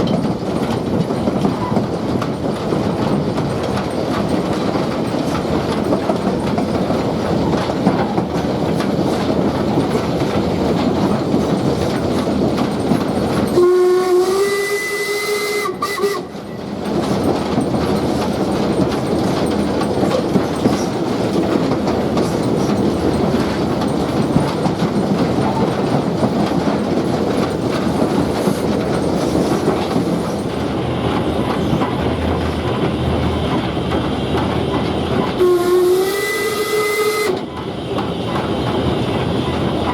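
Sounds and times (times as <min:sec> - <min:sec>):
train wheels clattering on rails: 0:00.0 - 0:39.9
steam locomotive whistle: 0:13.5 - 0:16.6, 0:35.4 - 0:37.6.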